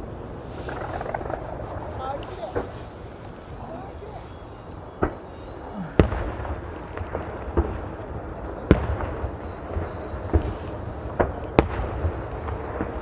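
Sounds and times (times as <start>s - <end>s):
fireworks bursting: 0.0s - 13.0s
rumble of booms and crackle: 0.0s - 13.0s.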